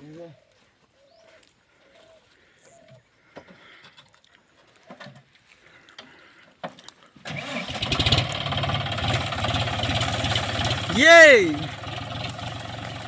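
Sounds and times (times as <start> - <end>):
tractor diesel engine running: 7.3 - 13.0.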